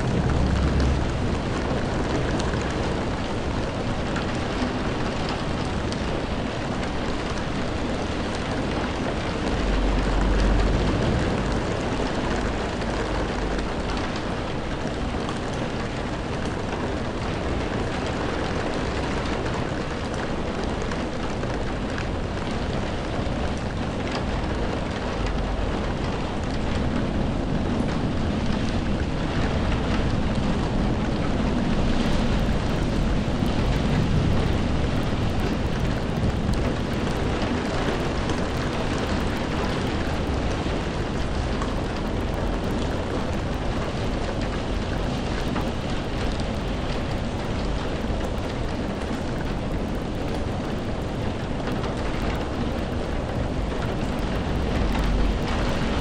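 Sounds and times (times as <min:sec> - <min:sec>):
low rumble: 0:00.0 - 0:05.8, 0:07.2 - 0:15.6
steady rainfall: 0:00.0 - 0:56.0.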